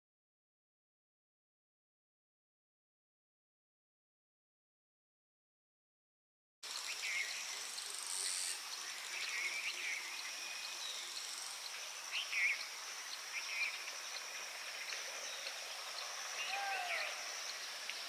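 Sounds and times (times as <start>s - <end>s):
high-pitched insect drone: 6.7s - 18.0s.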